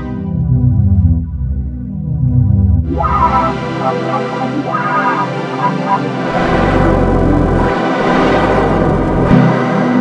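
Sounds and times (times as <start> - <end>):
bright synth with pitch glides: 2.9 - 9.4
low bass synth patch: 2.9 - 9.5.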